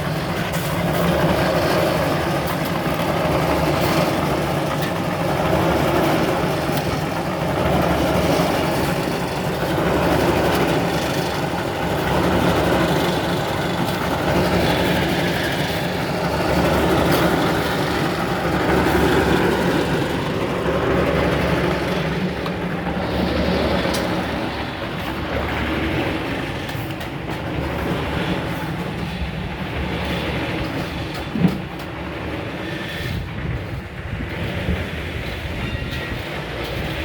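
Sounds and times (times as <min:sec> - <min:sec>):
concrete mixer running: 0:00.0 - 0:32.6.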